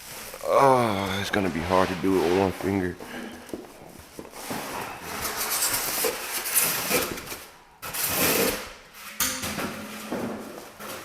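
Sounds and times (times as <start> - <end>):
packaging being scraped: 4.4 - 8.7.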